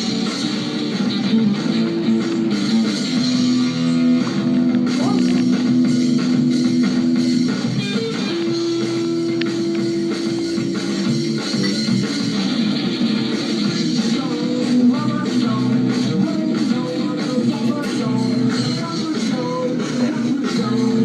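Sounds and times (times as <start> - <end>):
sustained guitar notes: 0.0 - 15.8
rock band playing: 0.0 - 21.0.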